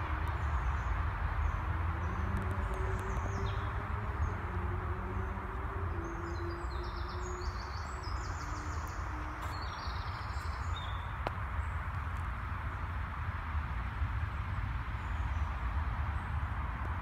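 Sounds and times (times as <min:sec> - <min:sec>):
small birds chirping: 0:00.2 - 0:12.9.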